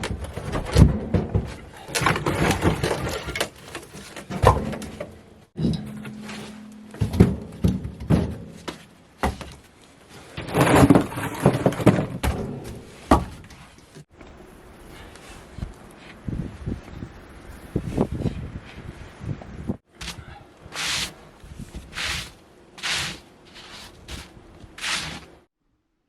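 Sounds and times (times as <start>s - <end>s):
knocks and thuds: 4.2s - 6.0s, 7.0s - 9.6s, 10.6s - 13.6s.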